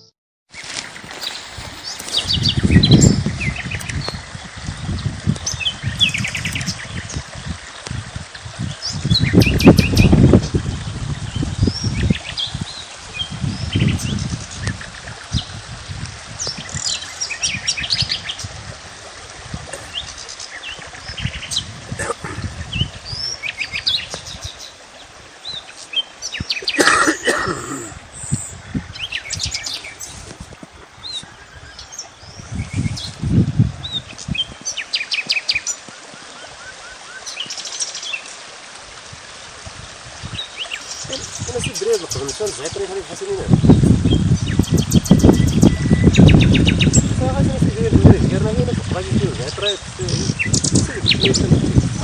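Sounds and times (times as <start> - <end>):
small birds chirping: 0.6 - 4.3, 8.6 - 10.2, 19.7 - 26.9, 27.7 - 38.3, 40.2 - 48.0, 49.4 - 51.9.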